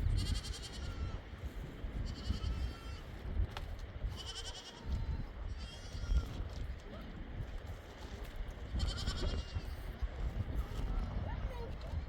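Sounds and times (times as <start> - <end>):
livestock bleating: 0.1 - 1.2, 2.0 - 3.0, 4.1 - 6.3, 8.8 - 9.8.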